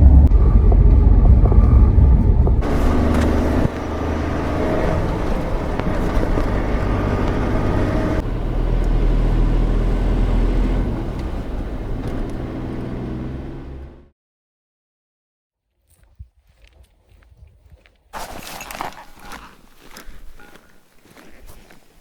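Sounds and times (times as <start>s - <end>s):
vehicle engine running: 0.0s - 14.1s.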